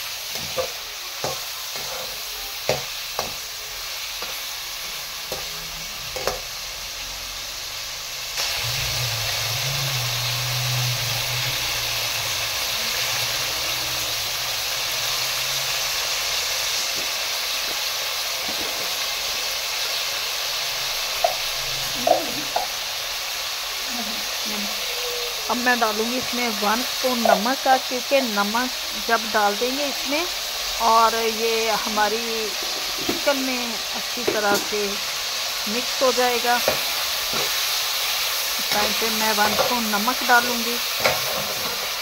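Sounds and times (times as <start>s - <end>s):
chicken sizzling in hot fat: 0.0s - 42.0s
metal spatula tapping and scraping: 0.3s - 3.4s, 5.3s - 5.6s, 6.2s - 6.5s, 21.2s - 22.7s, 27.2s - 27.5s, 36.6s - 37.6s, 38.7s - 39.8s.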